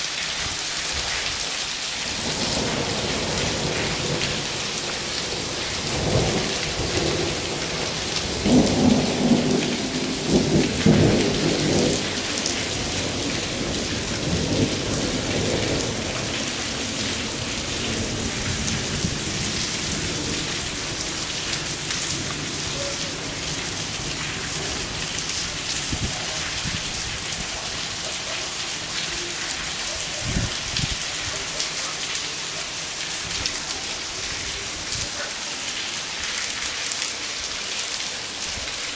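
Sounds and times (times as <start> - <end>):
hail and heavy rain falling: 0.0 - 38.9
thunder rumbling: 2.2 - 27.6.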